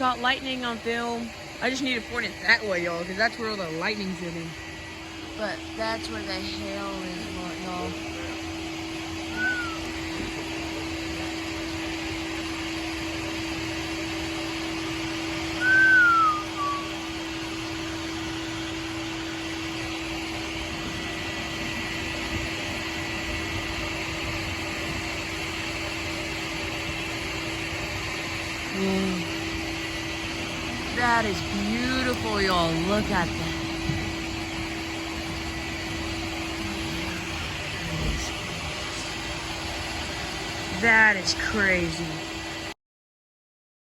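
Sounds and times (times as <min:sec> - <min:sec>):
falling whistle-like tones: 0:09.3 - 0:10.0, 0:15.6 - 0:17.0.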